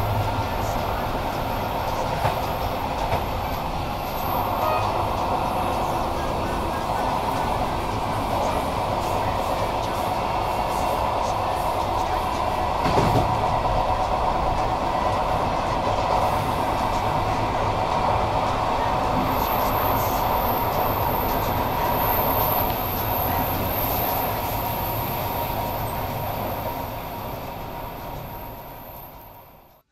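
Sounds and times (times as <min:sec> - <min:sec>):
train rumbling on rails: 0:00.0 - 0:29.9
knock: 0:12.8 - 0:13.3.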